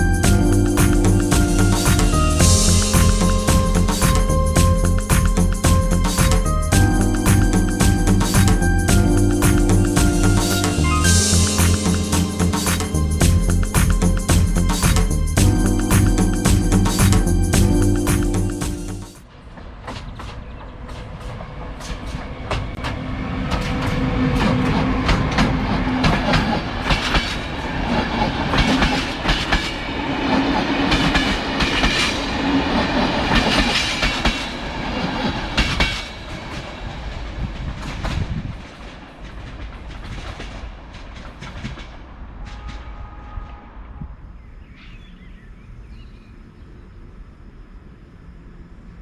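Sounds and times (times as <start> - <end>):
train rumble and low hum: 0.0 - 49.0
train wheels clicking over rail joints: 19.5 - 36.7, 37.4 - 42.8.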